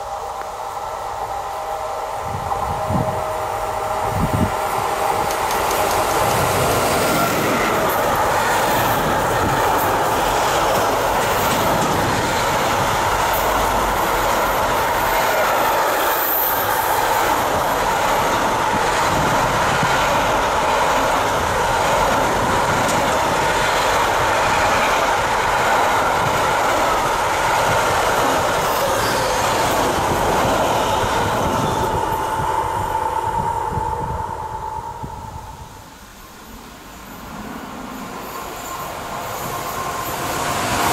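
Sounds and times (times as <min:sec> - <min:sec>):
freight train wheels clattering: 0:04.4 - 0:32.4.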